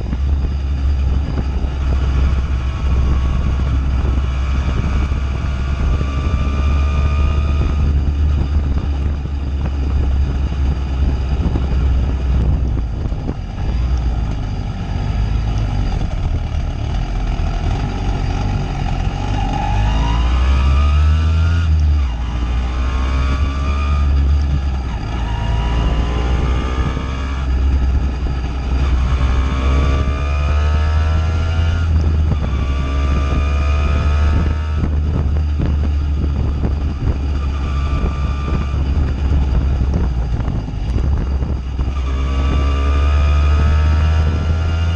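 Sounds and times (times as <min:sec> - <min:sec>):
wind rumble on microphone: 0:00.0 - 0:44.9
moped engine revving: 0:16.6 - 0:44.9.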